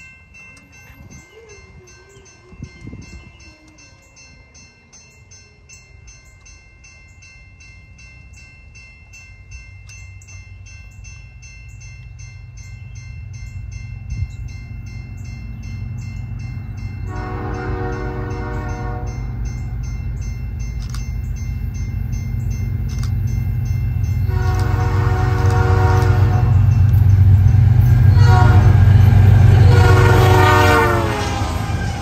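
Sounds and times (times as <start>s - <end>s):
crossing bell ringing: 0.0s - 32.0s
diesel locomotive rumbling: 5.4s - 32.0s
train air horn blast: 17.1s - 19.2s, 24.3s - 26.7s, 28.0s - 32.0s.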